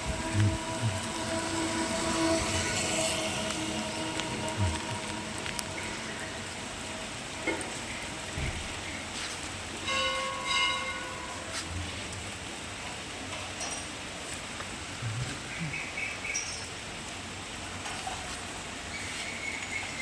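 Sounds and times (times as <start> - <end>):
horn sounding: 0.0 - 9.1
rain falling: 0.0 - 20.0.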